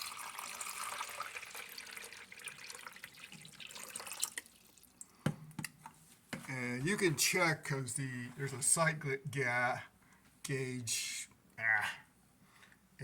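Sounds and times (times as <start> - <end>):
water pouring: 0.0 - 5.0.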